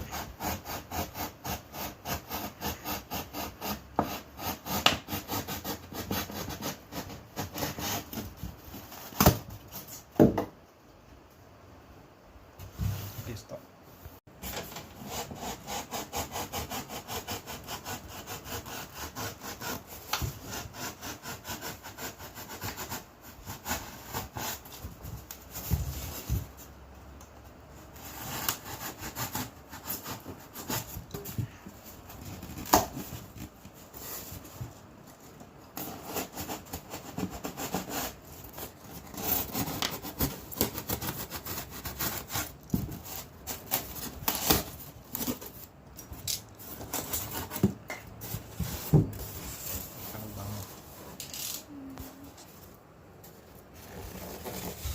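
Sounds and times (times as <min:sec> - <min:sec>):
saw cutting back and forth: 0:00.0 - 0:08.1, 0:15.0 - 0:23.0.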